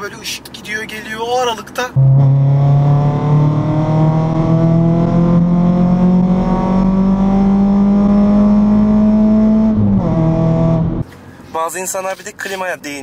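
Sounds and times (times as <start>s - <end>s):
car engine accelerating hard: 2.0s - 11.0s.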